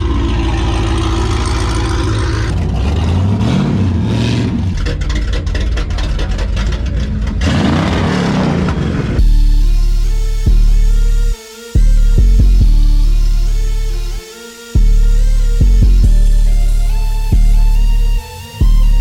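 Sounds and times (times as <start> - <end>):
exhaust crackles: 0.0 - 11.3
car engine revving: 0.0 - 19.0.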